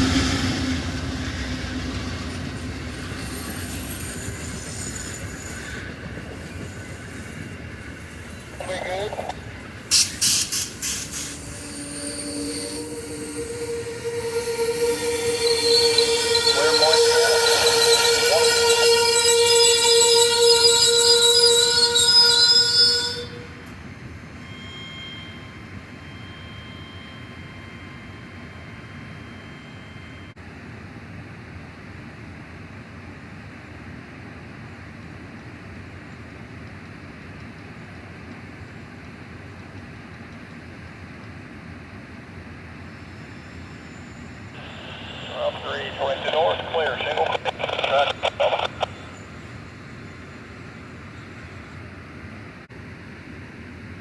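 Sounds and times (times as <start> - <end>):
train rolling on rails: 0.0 - 54.0
high-pitched wheel squeal: 9.9 - 30.3.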